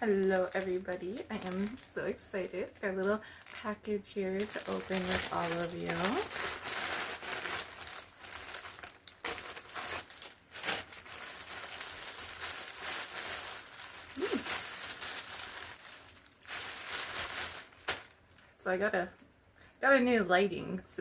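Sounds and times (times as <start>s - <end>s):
plastic packaging crinkling: 0.0s - 18.5s
packaging tearing: 4.3s - 18.3s.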